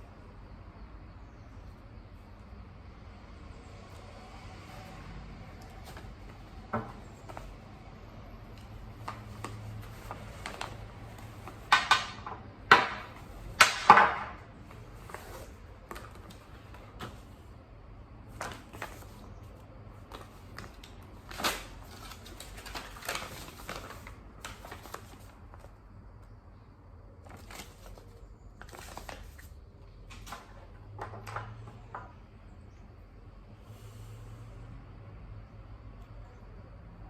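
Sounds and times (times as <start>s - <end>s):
packaging rustling crinkles: 18.3s - 25.8s, 27.2s - 30.6s.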